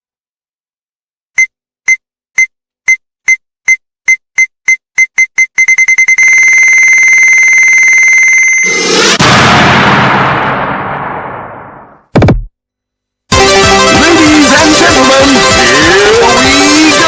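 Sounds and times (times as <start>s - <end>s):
electronic beeps: 1.4s - 9.0s.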